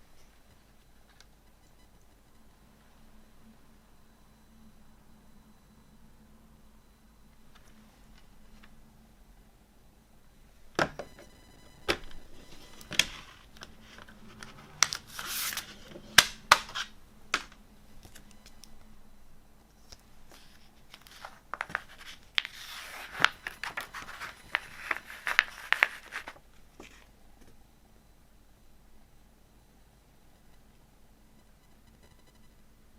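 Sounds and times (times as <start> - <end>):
plastic wrap crinkling and tearing: 20.9 - 26.4.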